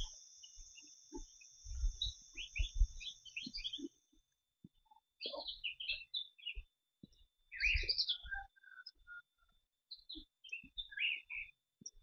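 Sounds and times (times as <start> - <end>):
steady high hiss: 0.0 - 3.8
soft low thumps: 0.0 - 3.9
small birds chirping: 0.0 - 12.0.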